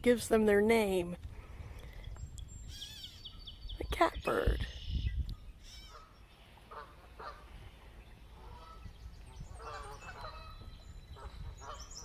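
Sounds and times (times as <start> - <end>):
harsh nasal bird calls: 2.5 - 12.0.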